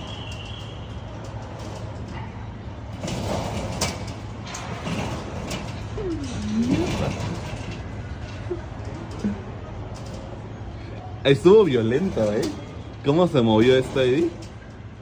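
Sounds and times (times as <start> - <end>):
clattering knocks and rattling: 0.0 - 10.7
sliding creak: 2.8 - 10.8.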